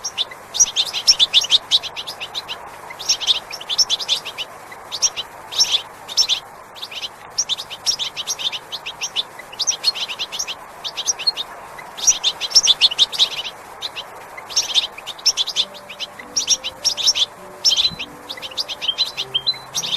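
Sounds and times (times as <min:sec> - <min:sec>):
small birds chirping: 0:00.0 - 0:19.9
steady background hiss: 0:00.0 - 0:19.9
faint low held tones: 0:15.5 - 0:19.9.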